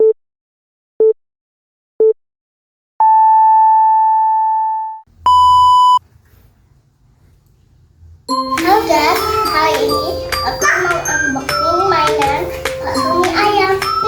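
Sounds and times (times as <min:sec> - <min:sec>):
electronic countdown beeps: 0:03.0 - 0:06.0.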